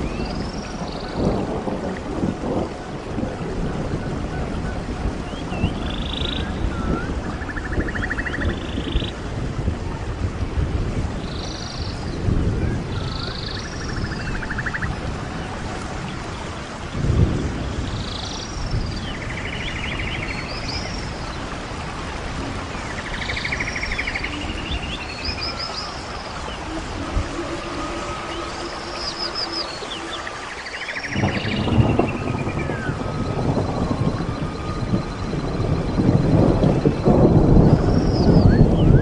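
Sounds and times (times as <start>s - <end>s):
birds chirping and trilling: 0.0s - 1.6s, 3.0s - 9.3s, 11.2s - 39.0s
steady hiss: 13.6s - 38.4s.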